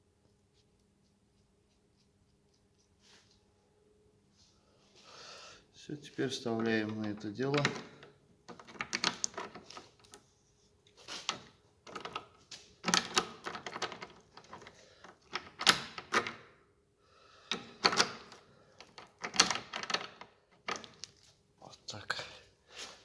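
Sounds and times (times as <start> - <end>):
sharp metal clicks and knocks: 6.6 - 10.2, 11.3 - 16.4.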